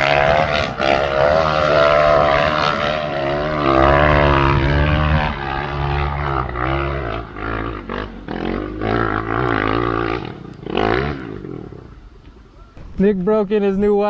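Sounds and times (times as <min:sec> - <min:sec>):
dirt bike engines revving: 0:00.0 - 0:12.8.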